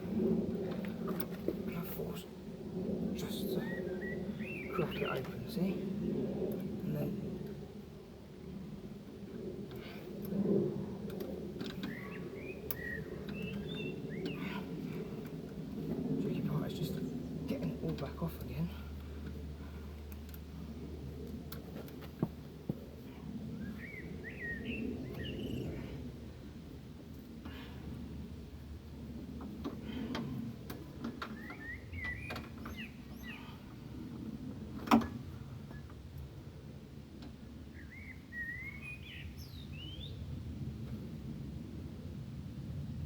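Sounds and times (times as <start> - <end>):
low rumble: 0.0 - 37.8
steady low hum: 0.0 - 43.0
birds chirping: 3.1 - 5.9, 11.6 - 15.4, 23.5 - 26.0, 31.2 - 33.8, 37.6 - 40.2
rising and falling bird calls: 3.5 - 5.3, 11.7 - 15.1, 23.6 - 25.9, 31.3 - 33.6, 37.7 - 40.2.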